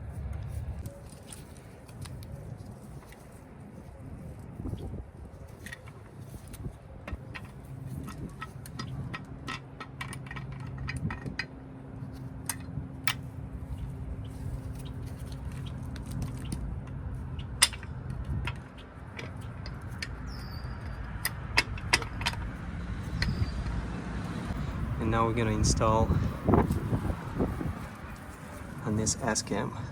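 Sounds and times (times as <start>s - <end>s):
steady low hum: 0.0s - 29.9s
metal hardware clicks and taps: 6.5s - 11.5s, 17.4s - 23.7s.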